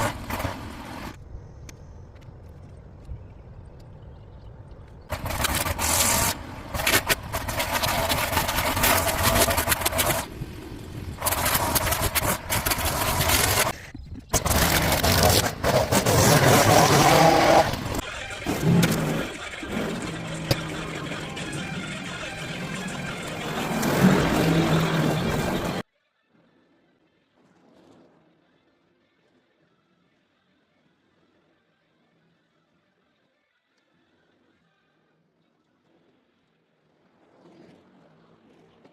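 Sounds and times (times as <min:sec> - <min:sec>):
lawn mower cutting grass: 0:05.1 - 0:13.7, 0:14.4 - 0:20.6.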